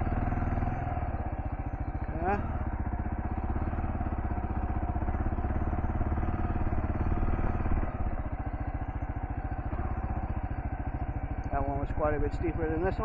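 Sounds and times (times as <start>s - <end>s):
motorcycle engine under throttle: 0.0s - 13.0s.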